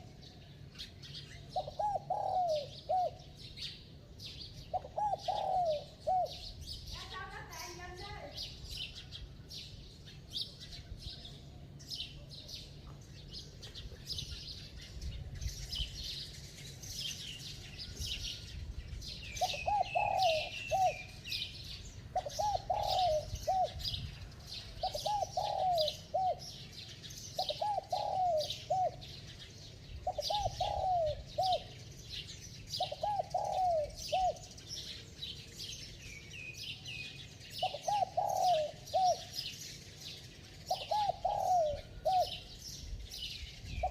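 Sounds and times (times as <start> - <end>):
small birds chirping: 0.0 - 43.9
dove cooing: 0.8 - 3.7, 4.6 - 6.6, 19.2 - 35.0, 37.4 - 43.9.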